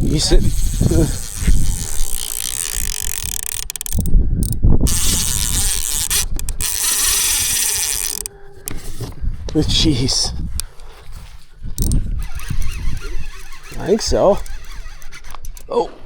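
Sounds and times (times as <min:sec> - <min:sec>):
fishing reel whirring and clicking: 0:00.0 - 0:08.4, 0:11.8 - 0:15.7.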